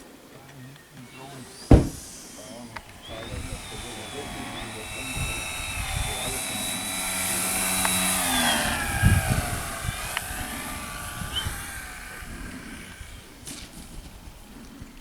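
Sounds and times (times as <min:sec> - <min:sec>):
model aircraft motor whine: 0:01.0 - 0:15.0
low thump: 0:01.7 - 0:02.2.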